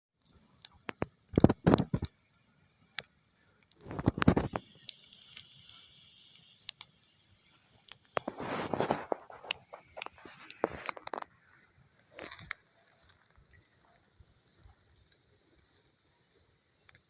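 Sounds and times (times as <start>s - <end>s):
campfire crackling: 0.2s - 17.0s
faint hiss: 0.2s - 17.0s
rustling crunch: 8.0s - 14.0s.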